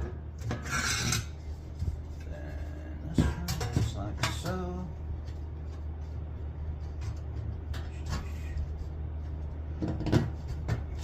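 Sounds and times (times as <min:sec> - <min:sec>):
low mechanical hum: 0:00.0 - 0:11.0
taps on sheet-metal ductwork: 0:06.8 - 0:11.0.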